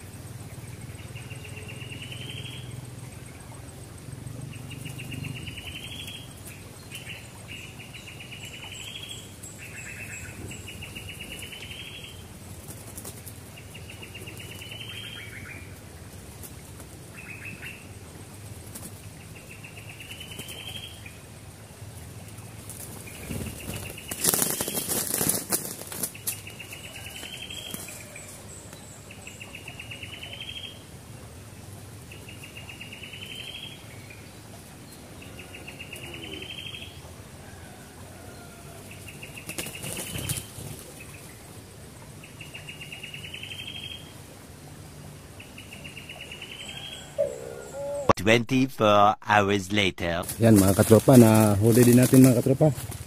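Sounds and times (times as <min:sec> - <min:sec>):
wing flapping and rustling: 0:12.3 - 0:14.7, 0:15.7 - 0:17.2, 0:18.2 - 0:19.3, 0:21.9 - 0:28.8, 0:39.0 - 0:41.6, 0:50.2 - 0:53.0.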